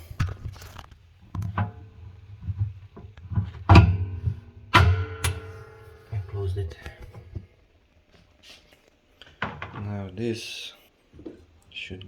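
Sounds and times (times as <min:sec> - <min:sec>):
washing machine lid knocks ringing: 0:03.7 - 0:06.3.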